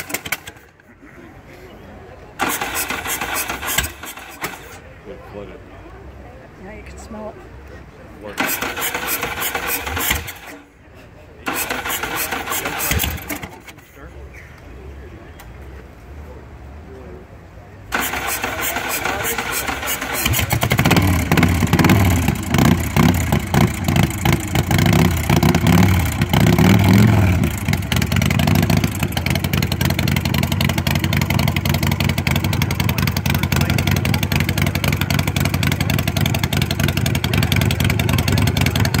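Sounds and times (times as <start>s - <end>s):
motorcycle engine revving and idling: 0.0s - 0.8s, 2.4s - 5.2s, 8.2s - 10.8s, 11.5s - 13.8s, 17.8s - 39.0s.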